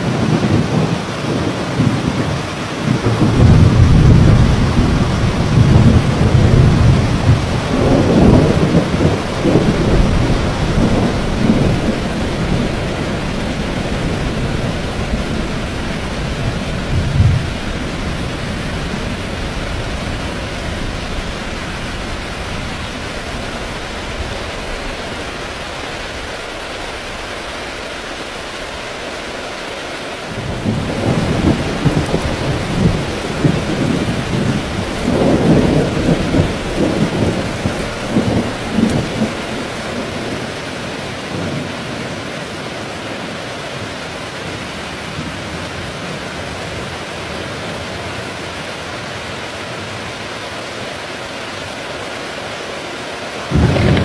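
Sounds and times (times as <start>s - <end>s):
thunder rumbling: 0.0s - 29.2s, 30.2s - 42.1s, 53.5s - 54.0s
heavy rain falling: 0.0s - 54.0s.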